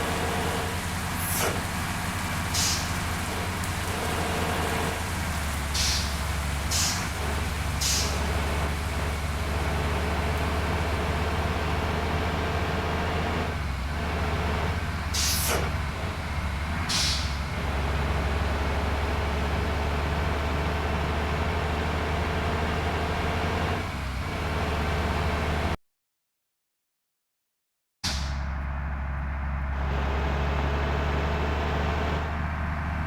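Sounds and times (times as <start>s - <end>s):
bus diesel engine droning: 0.0s - 25.8s, 28.1s - 33.0s
air brake hisses: 2.5s - 3.0s, 5.8s - 7.1s, 7.8s - 8.3s, 15.2s - 15.7s, 16.9s - 17.4s.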